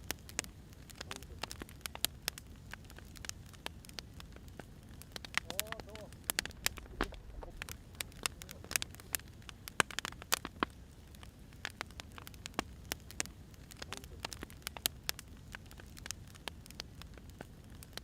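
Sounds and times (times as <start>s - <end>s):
low steady rumble: 0.0s - 17.8s
wood fire crackling: 0.0s - 18.0s.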